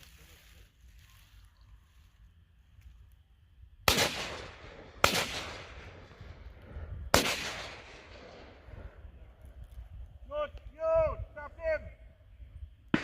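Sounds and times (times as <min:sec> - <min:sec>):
gunshots with echo: 0:03.9 - 0:06.2, 0:07.1 - 0:08.7.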